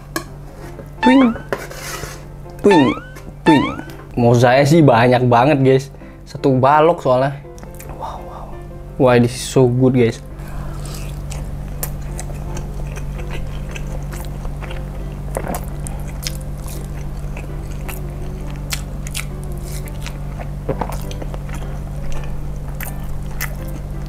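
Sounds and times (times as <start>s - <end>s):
wet chewing: 10.7s - 24.0s.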